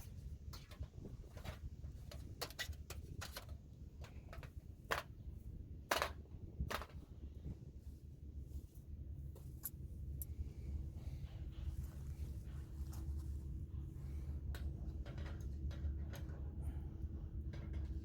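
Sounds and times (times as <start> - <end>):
low rumble: 4.7 - 18.0.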